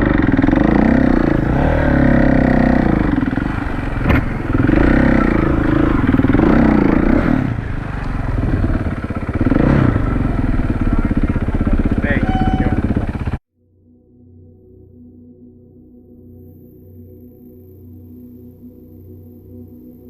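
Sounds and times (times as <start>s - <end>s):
motorcycle engine revving: 0.0s - 13.4s.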